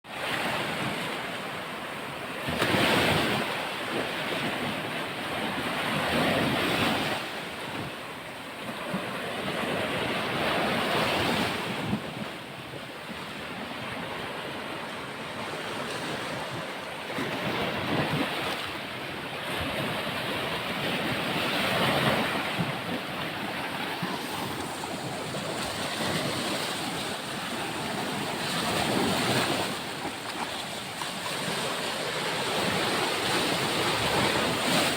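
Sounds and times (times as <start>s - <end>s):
sea waves breaking on shore: 0.1s - 34.9s
wind on microphone: 8.9s - 34.9s.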